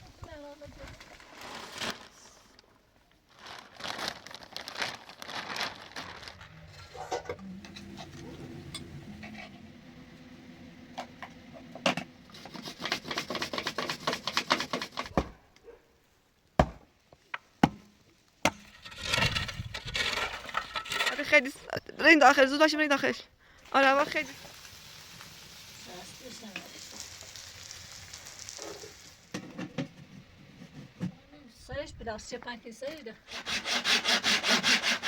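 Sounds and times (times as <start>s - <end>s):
crinkling and rustling: 0.2s - 9.7s.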